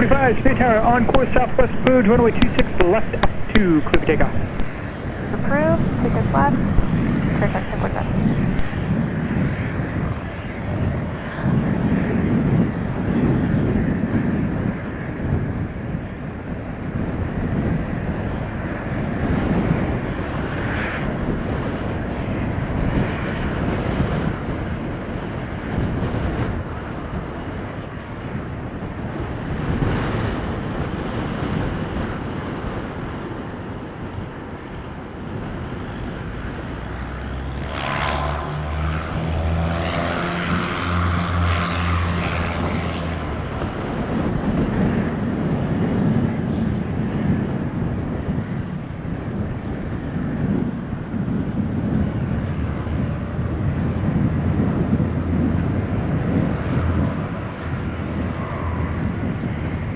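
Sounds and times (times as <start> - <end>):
airplane engines rumbling: 0.0 - 59.9
droning propeller tones: 0.0 - 59.9
wind on microphone: 0.0 - 59.9.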